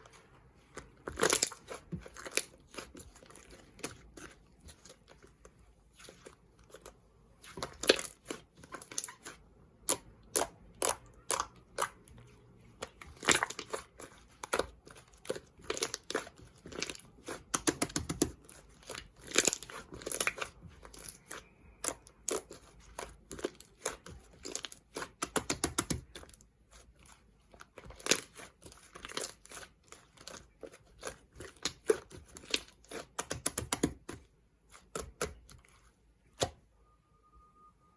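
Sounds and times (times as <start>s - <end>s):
slime crackling and popping: 1.0s - 3.9s, 12.9s - 26.4s, 27.7s - 34.2s.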